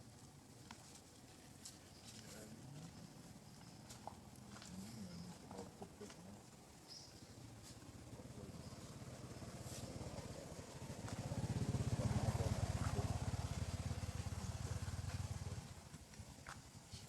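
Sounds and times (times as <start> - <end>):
motorbike engine passing by: 7.8 - 16.0.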